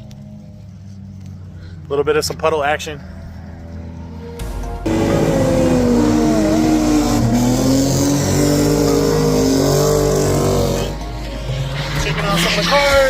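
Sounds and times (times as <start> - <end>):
car engine at high revs: 3.6 - 12.8.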